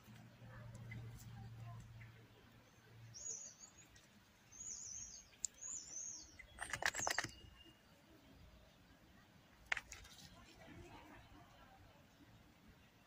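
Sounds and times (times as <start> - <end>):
small bird chirping: 0.8 - 8.8
sharp clicks or rustles: 6.4 - 7.4.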